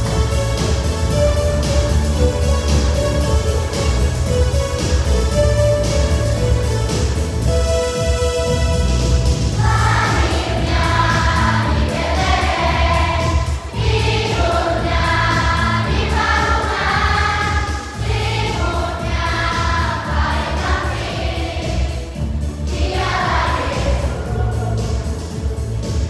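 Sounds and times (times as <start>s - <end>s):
instrumental accompaniment: 0.0s - 26.0s
children's choir singing: 9.5s - 26.0s.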